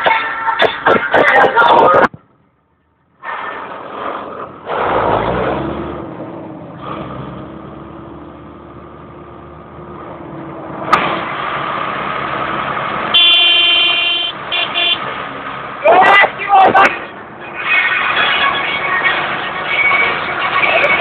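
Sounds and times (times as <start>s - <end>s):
tractor diesel engines running: 0.0s - 21.0s.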